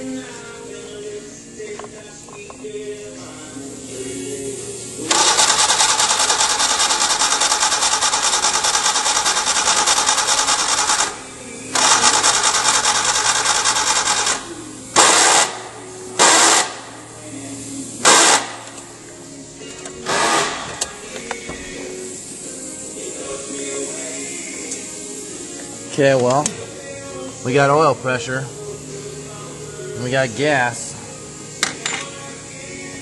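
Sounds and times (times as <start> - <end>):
engine cranking by starter: 5.0 - 14.4, 15.0 - 15.6, 20.0 - 21.0.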